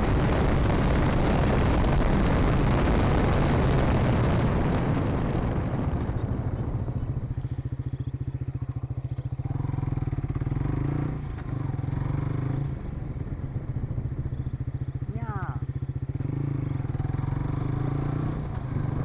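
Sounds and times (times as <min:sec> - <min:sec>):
wind noise: 0:00.0 - 0:09.2
motorcycle engine pulsing: 0:00.0 - 0:19.0.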